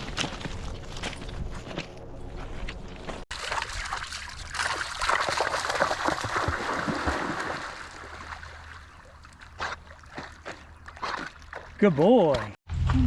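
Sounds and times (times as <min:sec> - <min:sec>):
river water running: 0:03.3 - 0:12.6.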